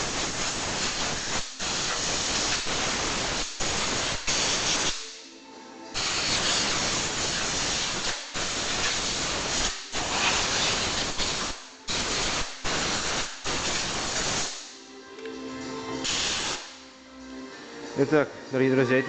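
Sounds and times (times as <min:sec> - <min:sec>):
air blow gun hissing: 0:00.0 - 0:05.2, 0:06.0 - 0:14.8, 0:16.0 - 0:16.8.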